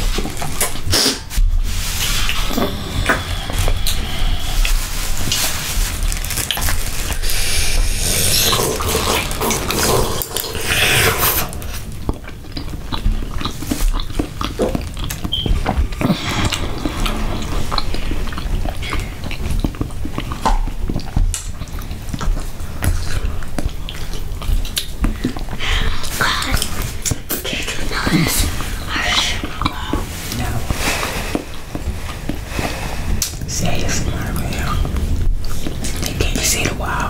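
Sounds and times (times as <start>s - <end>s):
chewing and lip smacks: 6.3s - 36.8s.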